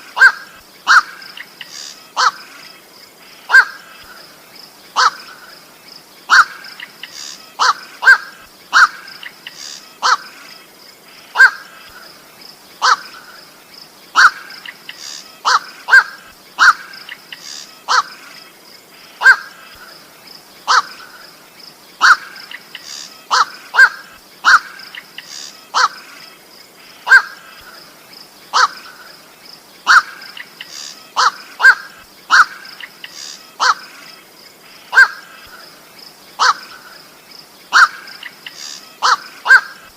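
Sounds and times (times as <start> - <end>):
harsh bird calls: 0.0 - 39.9.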